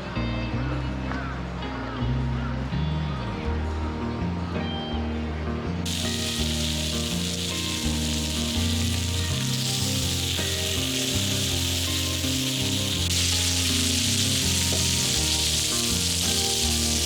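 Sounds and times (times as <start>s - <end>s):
background music: 0.0s - 17.0s
food sizzling on a pan: 5.9s - 17.0s.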